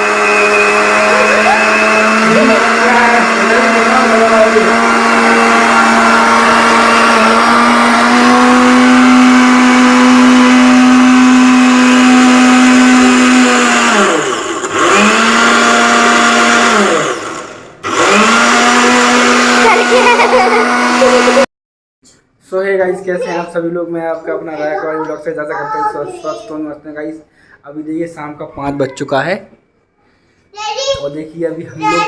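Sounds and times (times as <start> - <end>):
mixer grinder motor running: 0.0 - 21.5.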